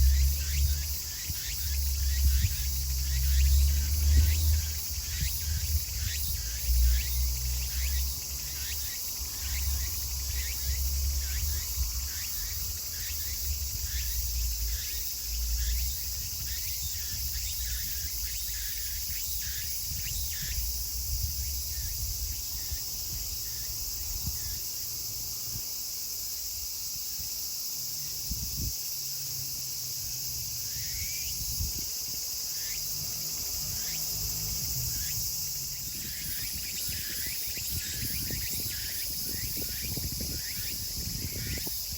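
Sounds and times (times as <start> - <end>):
cicadas droning and chirping: 0.0 - 41.9.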